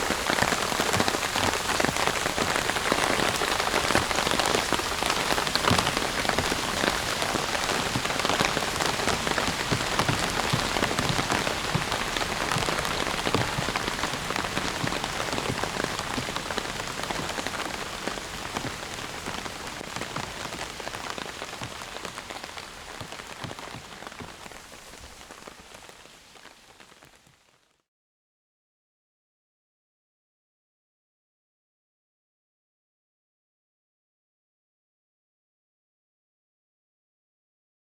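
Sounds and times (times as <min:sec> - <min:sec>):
heavy rain falling: 0:00.0 - 0:27.6.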